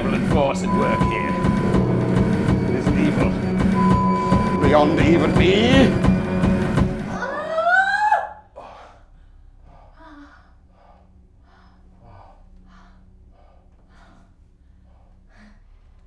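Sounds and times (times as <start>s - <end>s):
steady hum: 0.0s - 7.2s.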